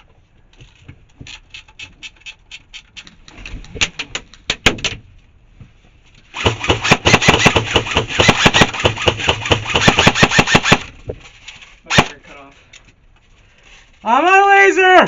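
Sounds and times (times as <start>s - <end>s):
airsoft gun shots: 6.4s - 10.9s, 11.9s - 12.2s.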